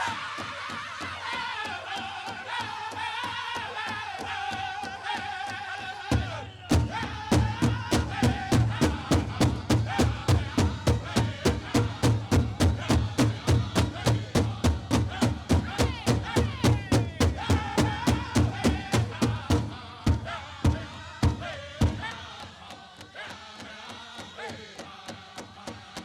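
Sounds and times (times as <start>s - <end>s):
high voices singing in unison: 0.0s - 26.0s
large drum beating: 6.1s - 22.2s.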